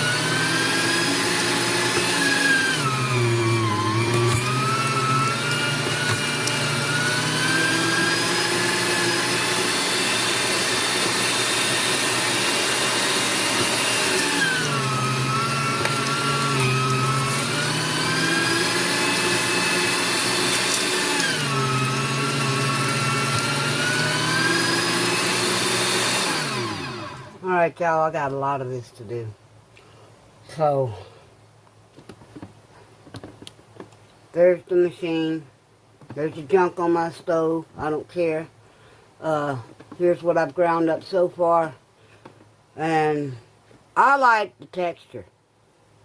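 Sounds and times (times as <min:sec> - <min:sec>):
electric meat grinder running: 0:00.0 - 0:27.4.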